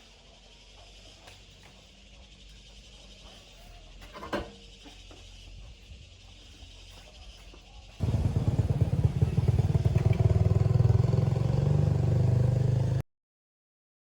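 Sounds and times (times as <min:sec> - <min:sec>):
small motorcycle engine putter: 0:08.0 - 0:11.1.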